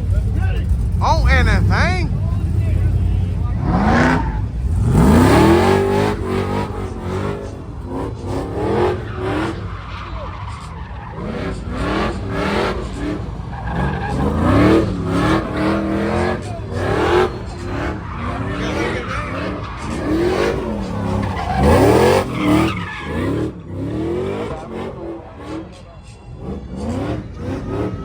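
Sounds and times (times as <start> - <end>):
car engine revving: 0.0 - 28.0
tyres squealing: 1.1 - 25.7.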